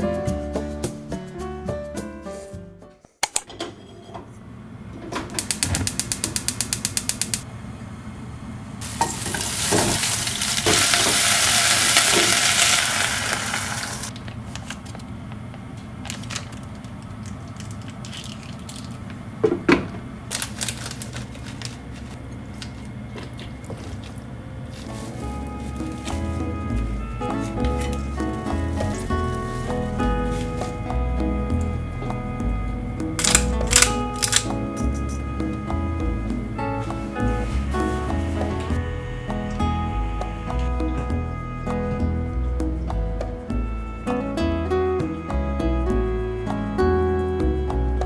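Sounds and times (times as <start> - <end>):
quick even clicks: 5.4 - 7.4
loud hiss: 8.8 - 14.1.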